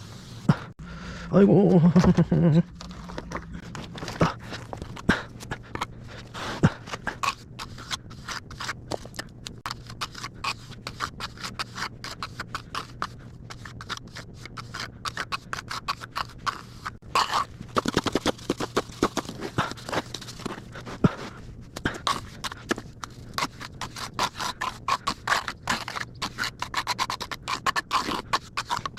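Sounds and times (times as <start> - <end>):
trowel scraping wet mortar: 2.8 - 28.9.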